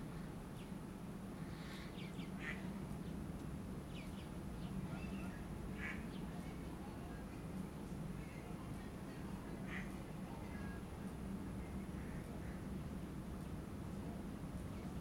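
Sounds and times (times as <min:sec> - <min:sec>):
steady low hum: 0:00.0 - 0:15.0
birds chirping: 0:01.6 - 0:03.2, 0:03.8 - 0:06.5.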